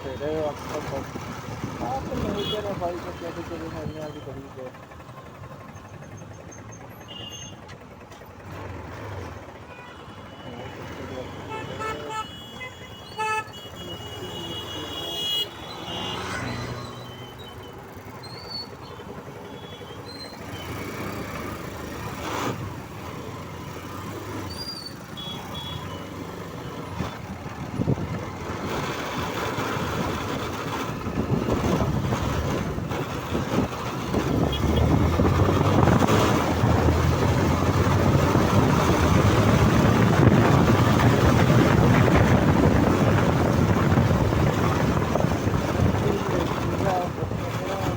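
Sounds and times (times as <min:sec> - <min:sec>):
motorcycle engine: 0:00.0 - 0:47.9
wind buffeting microphone: 0:27.0 - 0:28.9, 0:30.9 - 0:47.9.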